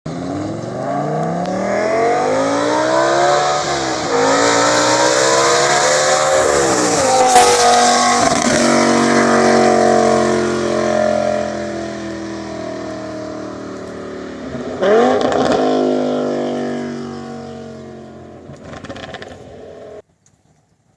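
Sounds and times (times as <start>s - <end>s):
car engine accelerating: 0.1s - 20.0s
exhaust crack: 4.0s - 16.2s, 17.8s - 20.0s.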